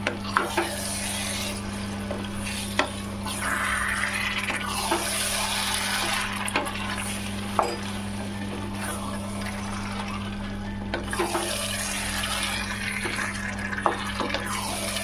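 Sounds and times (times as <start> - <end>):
chicken sizzling in a pot: 0.6 - 15.0.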